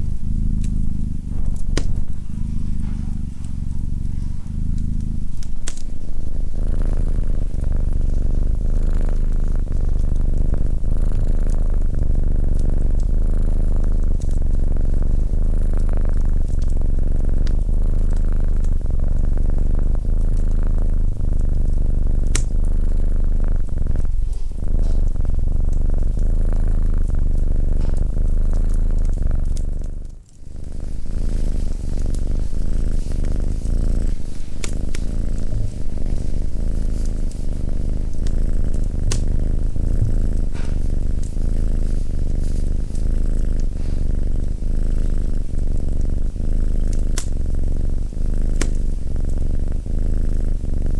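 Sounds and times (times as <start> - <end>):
cat purring: 0.0 - 50.9
faint sharp clicks: 4.4 - 5.9, 22.2 - 22.6, 46.9 - 47.3.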